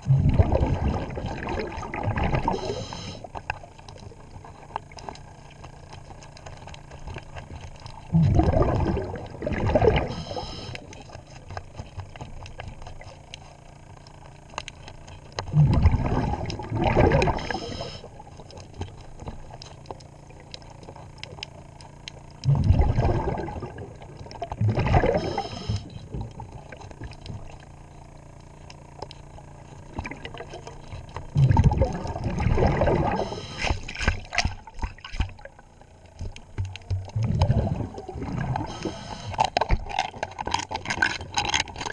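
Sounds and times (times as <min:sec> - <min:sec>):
diver exhaling bubbles: 0:00.0 - 0:03.3, 0:08.1 - 0:11.0, 0:15.5 - 0:18.2, 0:22.4 - 0:27.5, 0:29.9 - 0:34.7, 0:36.9 - 0:41.9.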